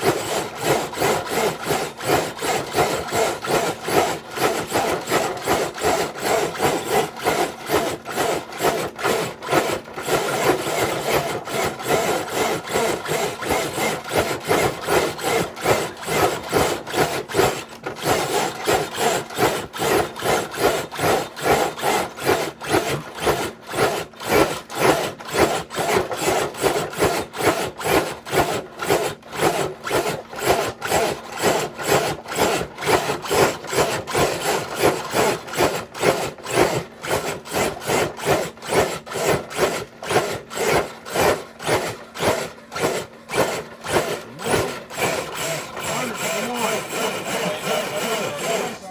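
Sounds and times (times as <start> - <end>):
sled scraping on ground: 45.7 - 48.9.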